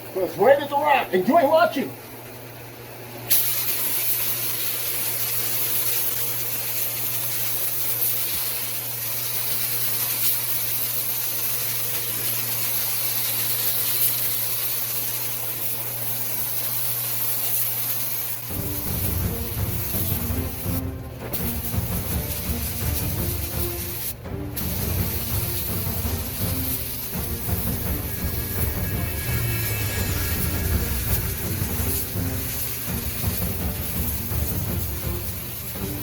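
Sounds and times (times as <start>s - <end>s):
paint spray gun hissing: 3.3s - 36.0s
background music: 18.5s - 36.0s
low hum: 18.5s - 36.0s.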